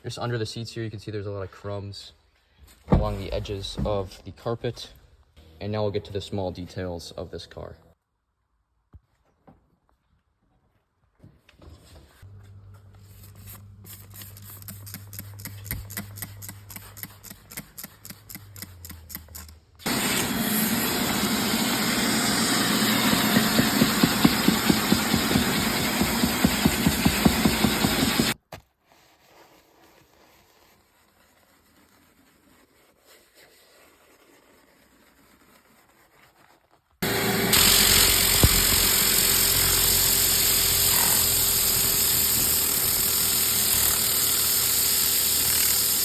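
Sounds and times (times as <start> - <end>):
hissing pulsing machine: 19.9 - 28.4, 37.0 - 46.0
motor humming with fast ticking: 19.9 - 28.4, 37.0 - 46.0.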